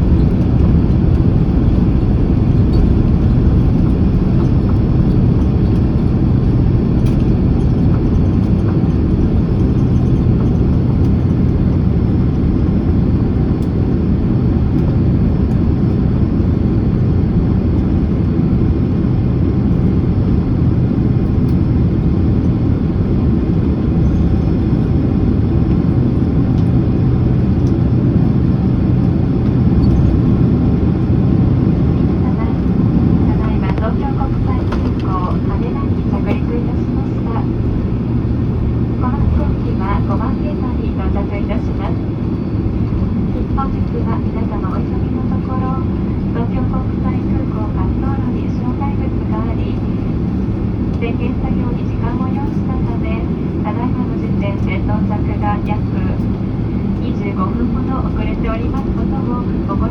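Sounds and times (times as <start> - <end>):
aircraft engines running low: 0.0 - 59.9
faint steady hum: 0.0 - 59.9.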